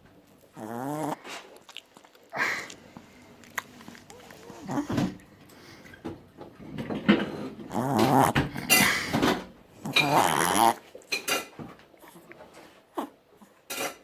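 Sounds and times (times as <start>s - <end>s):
dog snoring: 0.5s - 1.4s, 3.7s - 6.0s, 7.1s - 9.0s, 9.7s - 10.8s
soft breathing: 2.3s - 7.6s.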